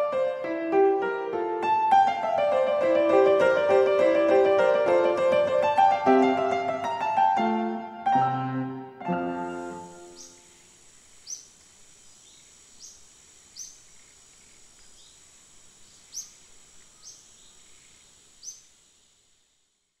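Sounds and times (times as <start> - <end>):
piano chord: 0.0 - 10.4
birds chirping: 9.2 - 18.7.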